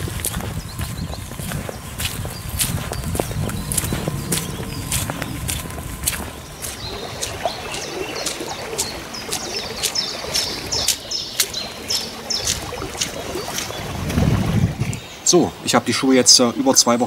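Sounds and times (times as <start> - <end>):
small birds chirping: 0.0 - 17.0
outdoor background hiss: 14.5 - 17.0.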